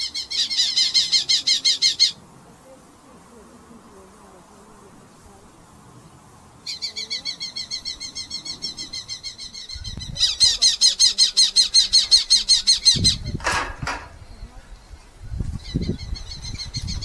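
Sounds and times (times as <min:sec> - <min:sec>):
falcon rapid repeated calls: 0:00.0 - 0:02.2, 0:06.6 - 0:13.2.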